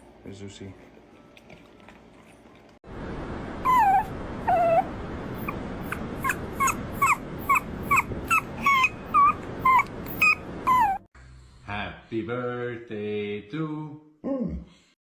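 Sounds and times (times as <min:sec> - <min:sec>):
dog whimpering: 0:03.6 - 0:11.1.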